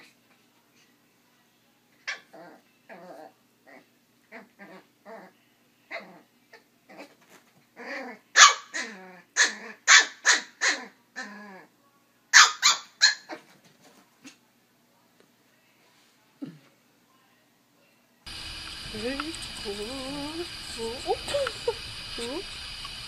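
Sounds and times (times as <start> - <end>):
small dog barking: 8.3 - 10.9, 12.3 - 13.4.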